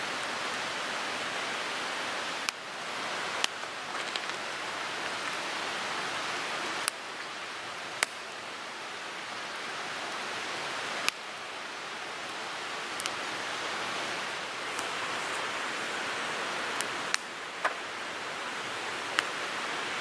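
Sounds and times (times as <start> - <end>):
hissing flames: 12.9 - 17.6
fire crackling pops: 13.9 - 17.8.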